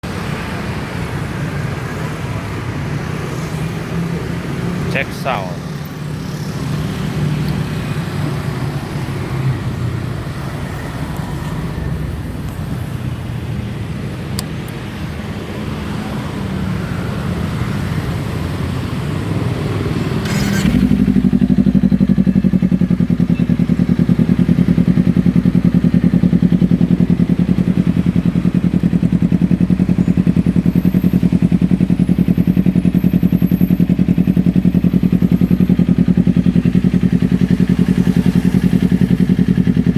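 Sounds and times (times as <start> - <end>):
motorcycle engine idling: 20.2 - 39.9.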